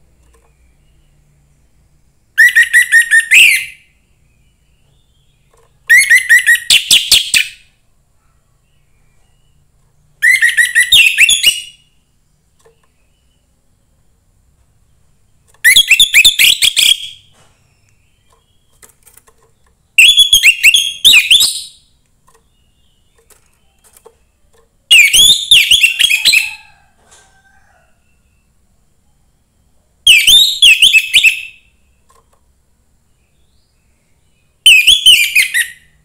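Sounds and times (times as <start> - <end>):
thrush singing whistled phrases: 2.4 - 3.8, 5.9 - 7.6, 10.2 - 11.9, 15.6 - 17.2, 19.9 - 21.8, 24.9 - 26.5, 30.1 - 31.7, 34.6 - 36.0.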